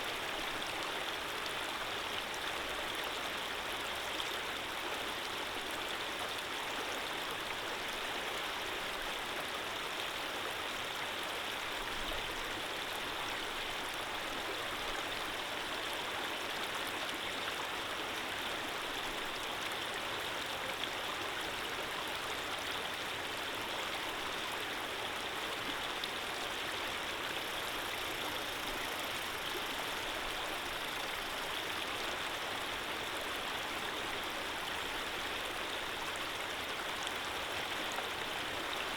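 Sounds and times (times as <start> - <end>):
running water: 23.9 - 38.9.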